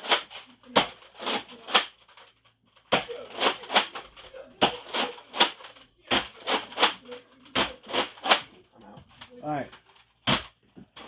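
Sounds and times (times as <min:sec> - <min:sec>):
toy blasters firing darts: 0:00.0 - 0:02.0, 0:02.9 - 0:08.5.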